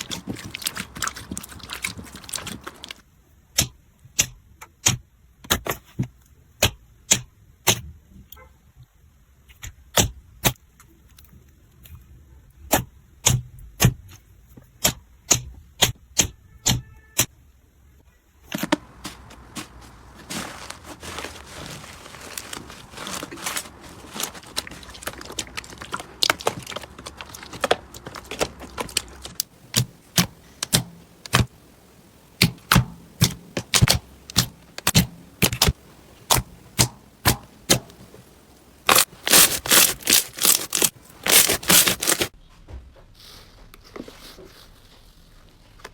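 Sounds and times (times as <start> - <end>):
soft crackling hiss: 18.5 - 42.4.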